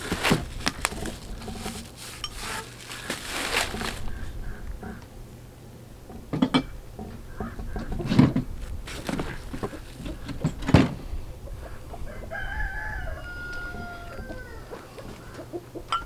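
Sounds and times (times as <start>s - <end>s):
metal parts clanking: 0.0s - 4.1s
rooster crowing: 11.6s - 15.6s.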